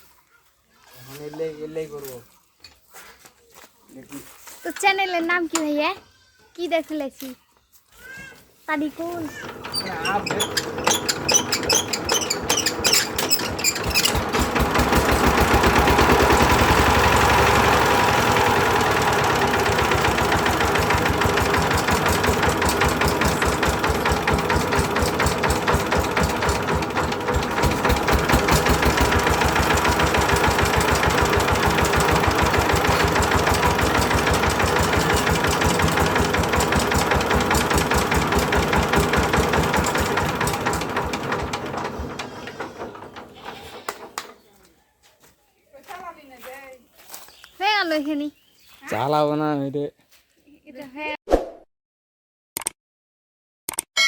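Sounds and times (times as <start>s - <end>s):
diesel engine chugging: 9.0s - 44.3s.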